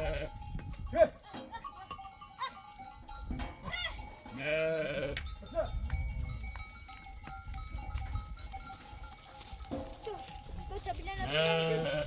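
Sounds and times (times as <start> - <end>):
sheep bleating: 0.0 - 0.4, 3.8 - 5.2, 11.0 - 12.0
animal bells ringing: 0.0 - 12.0.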